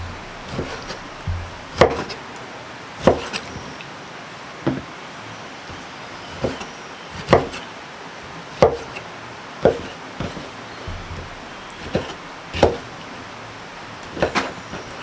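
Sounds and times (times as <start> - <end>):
knife chopping on wooden board: 0.0 - 2.2, 3.0 - 3.6, 5.7 - 7.6, 8.6 - 9.0, 9.6 - 13.2, 14.0 - 15.0.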